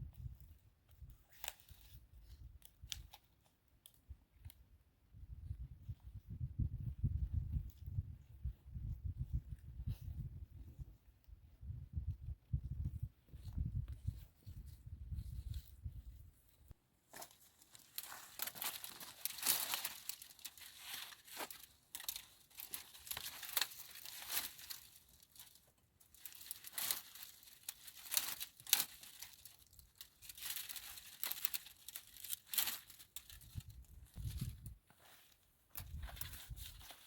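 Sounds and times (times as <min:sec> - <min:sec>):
dry material crumpling and tearing: 0:17.3 - 0:34.5.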